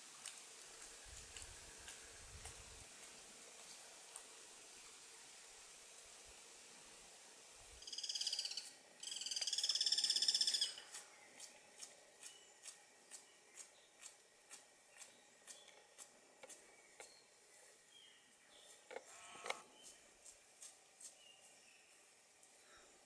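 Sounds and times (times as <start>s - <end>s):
bird rattling trills: 7.8s - 13.7s.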